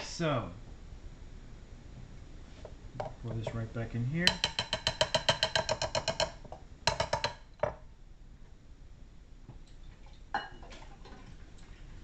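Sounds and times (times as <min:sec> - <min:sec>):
containers and utensils knocking: 0:04.3 - 0:07.8.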